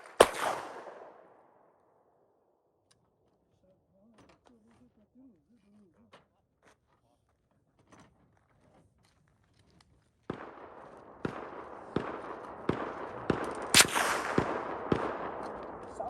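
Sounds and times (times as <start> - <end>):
rifle shots: 0.0 - 1.4, 10.3 - 16.0.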